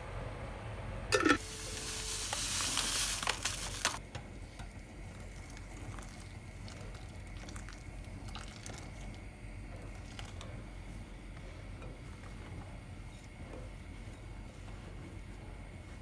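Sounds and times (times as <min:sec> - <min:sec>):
food sizzling in hot oil: 0:01.2 - 0:04.0.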